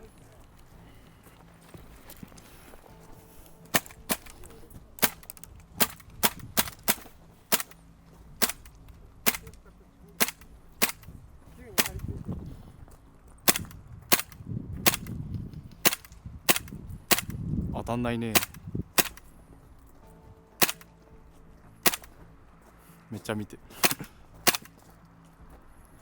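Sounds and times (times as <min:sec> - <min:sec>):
airsoft gun shots: 0:03.7 - 0:07.8, 0:08.4 - 0:09.6, 0:10.2 - 0:11.1, 0:11.8 - 0:12.1, 0:13.4 - 0:15.2, 0:15.8 - 0:17.4, 0:18.3 - 0:19.3, 0:20.6 - 0:20.9, 0:21.8 - 0:22.1, 0:23.8 - 0:24.8.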